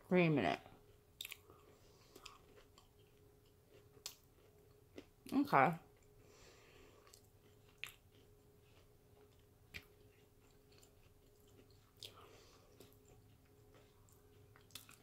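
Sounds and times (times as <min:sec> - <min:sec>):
faint steady hum: 0:00.0 - 0:15.0
soft mouth clicks chewing: 0:01.2 - 0:05.1, 0:07.0 - 0:15.0.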